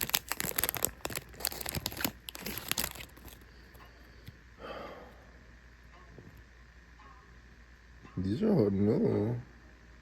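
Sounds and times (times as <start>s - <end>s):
foil wrapper tearing and crinkling: 0.0s - 3.4s.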